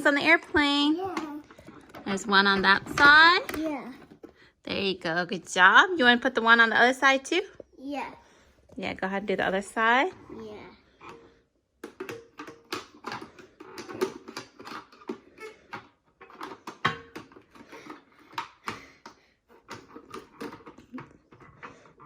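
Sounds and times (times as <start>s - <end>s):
plastic toy clicks and taps: 11.8s - 21.1s.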